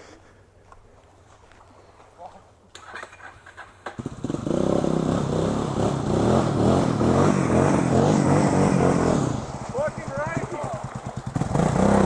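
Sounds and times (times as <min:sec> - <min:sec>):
off-road vehicle engine revving: 0:03.9 - 0:12.0.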